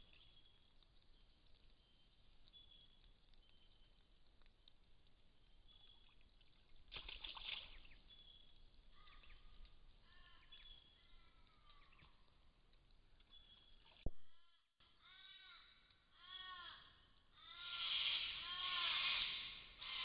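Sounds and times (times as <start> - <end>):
falling bird calls: 7.5 - 12.3, 13.2 - 20.0.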